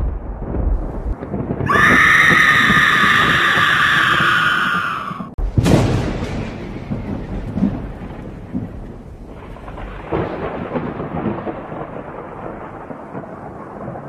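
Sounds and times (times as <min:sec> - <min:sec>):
thunder rumbling: 0:00.0 - 0:14.0
steady rain: 0:05.9 - 0:14.0.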